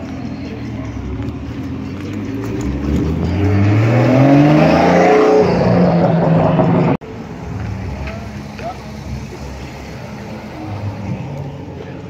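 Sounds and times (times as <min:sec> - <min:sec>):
car engine revving: 0:00.6 - 0:12.0.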